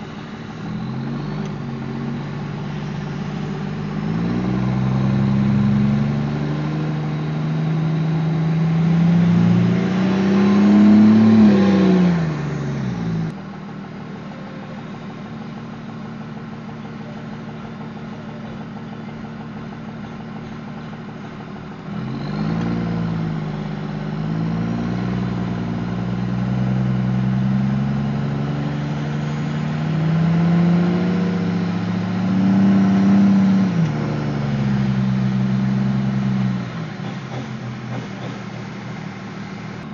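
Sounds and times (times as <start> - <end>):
vehicle engine accelerating: 0.0 - 13.4, 21.7 - 39.9.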